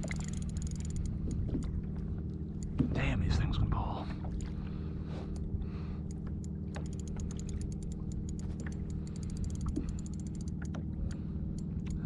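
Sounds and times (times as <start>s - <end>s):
fishing reel clicking: 0.0s - 1.2s, 6.4s - 10.8s
steady low hum: 0.0s - 12.0s.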